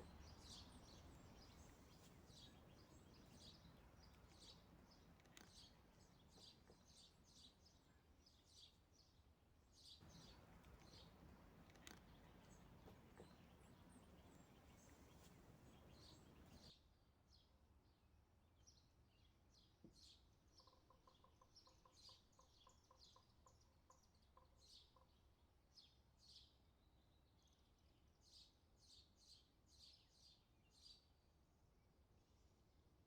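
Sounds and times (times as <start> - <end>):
faint birds chirping: 0.0 - 16.7.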